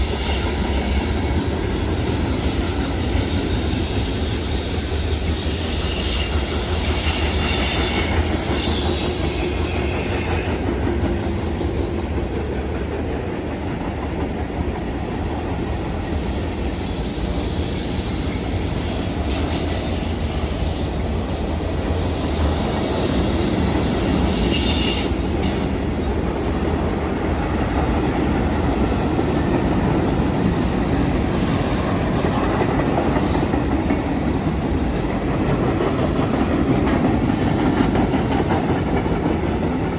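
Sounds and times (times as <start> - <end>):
high-pitched wheel squeal: 0.0 - 10.6, 22.4 - 25.8
train rumbling on rails: 0.0 - 39.9.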